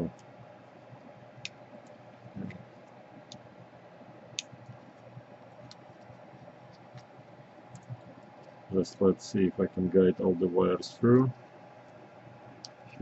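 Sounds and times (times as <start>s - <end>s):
steady low hum: 0.0s - 13.0s
light clicks and taps: 7.7s - 8.6s.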